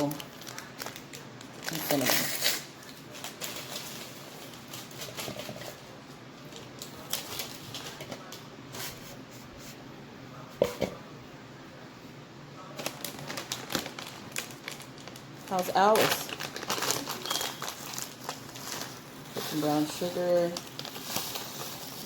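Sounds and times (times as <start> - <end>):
paper packets crinkling: 0.0 - 8.3, 12.8 - 22.0.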